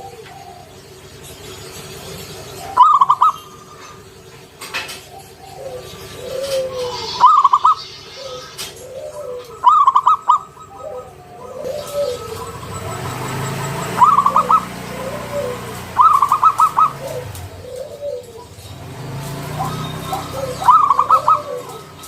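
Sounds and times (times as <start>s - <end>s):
dove stuttering high notes: 0.0s - 22.0s
soft low dove coos: 5.1s - 13.1s, 13.9s - 18.7s, 19.6s - 22.0s.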